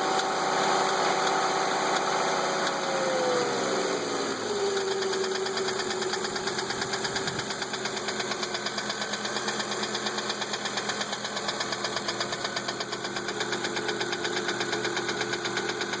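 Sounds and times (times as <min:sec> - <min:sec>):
car engine idling with knock: 0:04.6 - 0:16.0.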